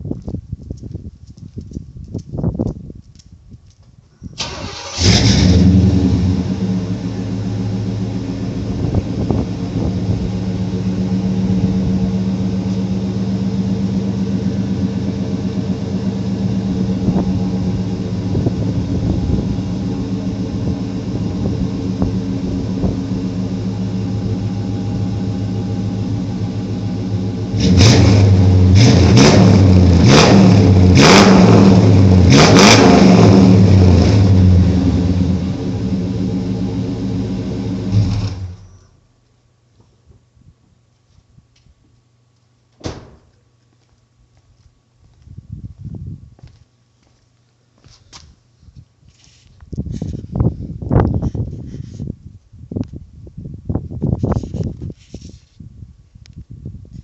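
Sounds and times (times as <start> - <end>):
engine revving: 4.4 - 38.7
car engine starting and idling: 4.4 - 39.0.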